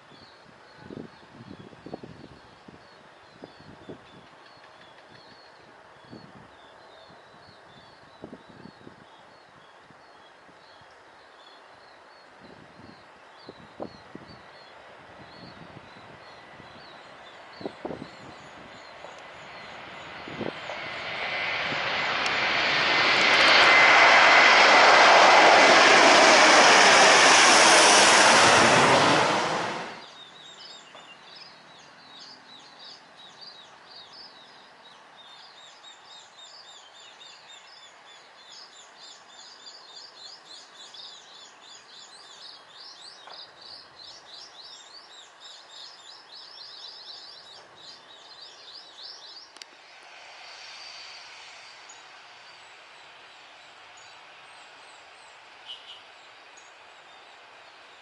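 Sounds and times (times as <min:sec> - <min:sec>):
loud jet airliner engines: 0:15.0 - 0:30.1, 0:48.8 - 0:55.7.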